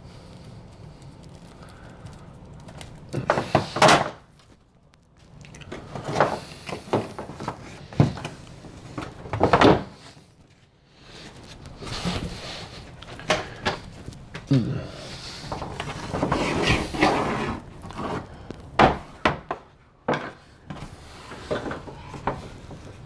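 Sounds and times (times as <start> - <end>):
cables knocking and rubbing on wood: 0.0 - 10.2.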